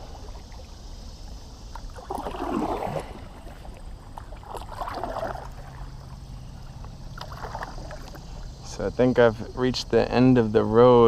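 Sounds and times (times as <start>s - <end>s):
paddle splashing in water: 1.7s - 6.2s, 7.2s - 8.2s.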